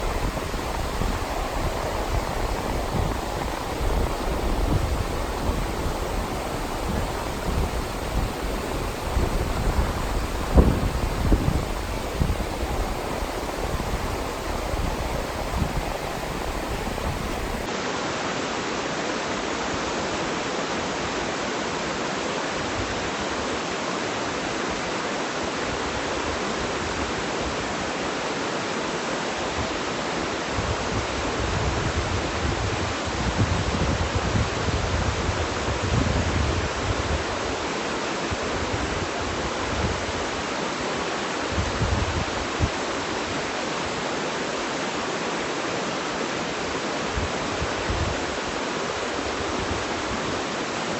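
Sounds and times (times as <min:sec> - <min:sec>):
rushing water: 0:00.0 - 0:17.8.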